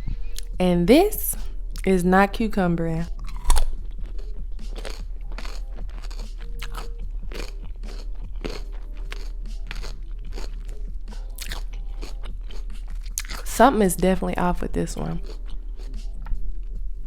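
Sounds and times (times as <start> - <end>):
cucumber crunching while chewed: 3.1 - 13.5, 15.0 - 16.4.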